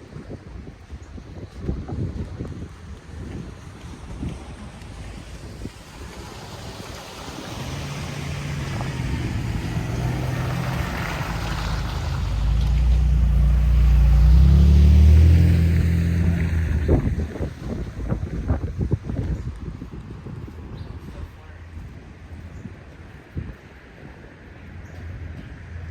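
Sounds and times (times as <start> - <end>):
tyre and wind noise hiss: 0.0 - 25.9
heavy vehicle engine passing: 4.7 - 18.6.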